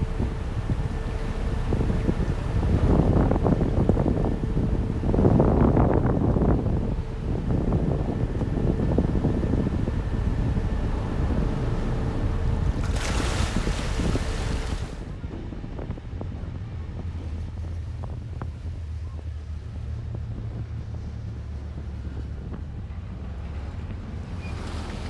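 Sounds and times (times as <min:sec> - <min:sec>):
water noise: 0:00.0 - 0:15.3
ferry engine drone: 0:00.0 - 0:25.0
wind buffeting microphone: 0:00.0 - 0:25.0.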